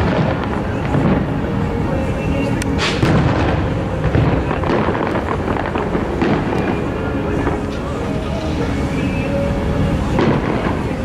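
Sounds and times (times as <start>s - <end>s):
firework crackles: 0.0s - 11.0s
firework shells booming: 2.8s - 9.2s.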